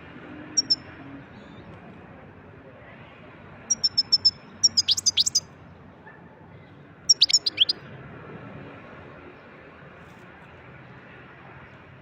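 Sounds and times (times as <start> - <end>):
goldfinch twittering: 0.6 - 0.8, 3.7 - 5.4, 7.1 - 7.8.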